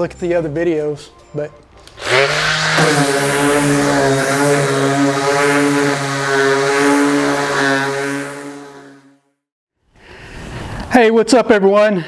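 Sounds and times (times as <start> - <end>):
electric sander running: 1.8 - 9.2.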